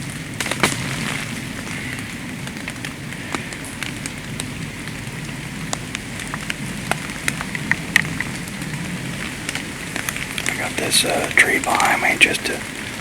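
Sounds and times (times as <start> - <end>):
light rain pattering: 0.0 - 13.0.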